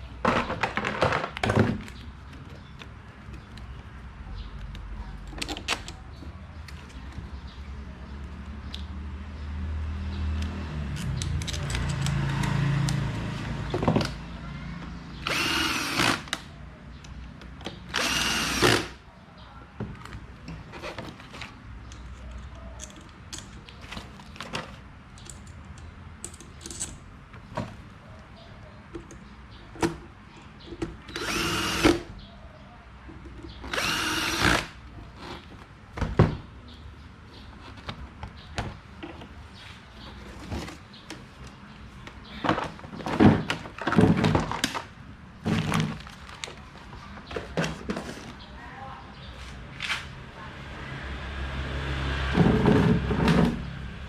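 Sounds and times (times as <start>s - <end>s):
clicks and knocks of tools: 10.4s - 13.0s, 19.9s - 27.8s
power drill whirring: 15.2s - 16.4s, 17.9s - 19.0s, 31.1s - 32.0s, 33.7s - 34.8s.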